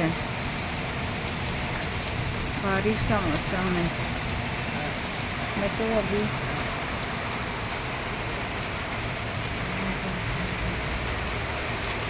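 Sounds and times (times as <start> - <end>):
rain falling steadily: 0.0 - 12.0
ticks of raindrops: 0.0 - 12.0.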